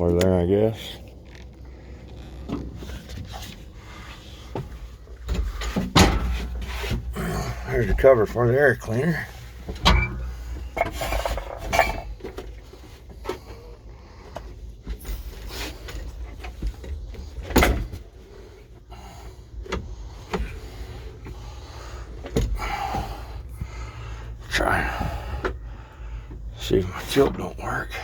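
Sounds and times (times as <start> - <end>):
low steady hum: 0.0 - 28.0
metal parts knocking and clunking: 5.2 - 7.1, 9.6 - 12.6.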